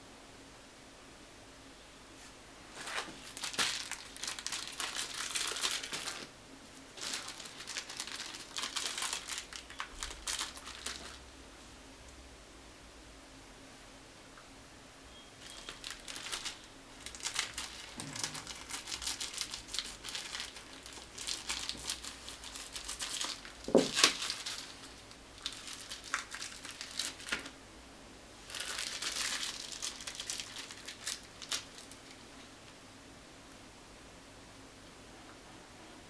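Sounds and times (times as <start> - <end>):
plastic packaging crinkling: 2.7 - 11.3, 15.4 - 27.6, 28.4 - 32.4.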